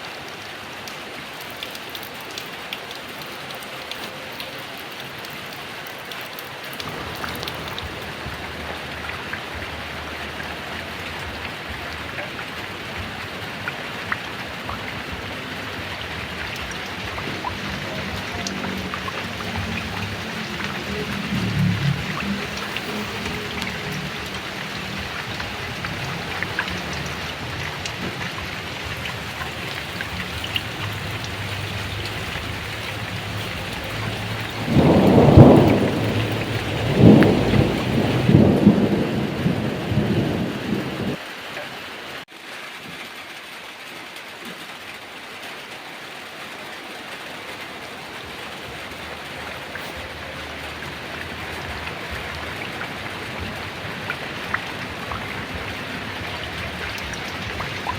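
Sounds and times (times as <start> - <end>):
heavy rain: 0.0 - 57.9
rolling thunder: 11.1 - 41.2.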